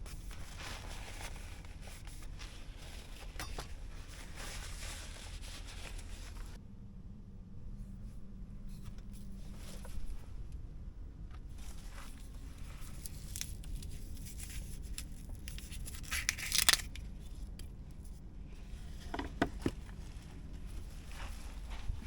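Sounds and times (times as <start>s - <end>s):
steady low hum: 0.0s - 22.0s
food packaging crinkling: 11.5s - 17.2s
packaging ripping: 13.0s - 17.0s.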